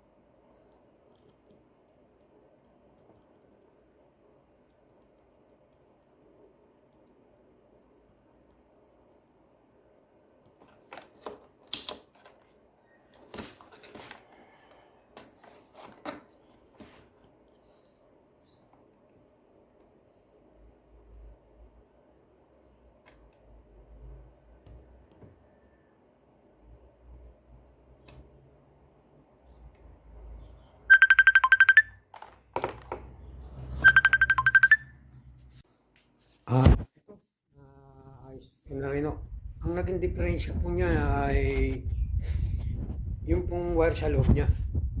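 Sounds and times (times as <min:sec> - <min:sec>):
electronic ringtone beeps: 0:30.9 - 0:32.0, 0:33.8 - 0:35.0.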